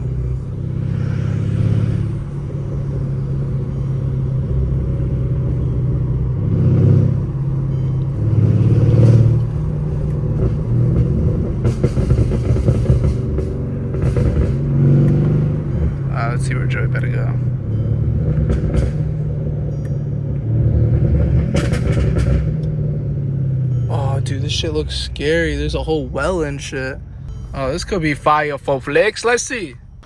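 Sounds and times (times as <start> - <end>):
car engine drone from cabin: 0.0 - 30.0.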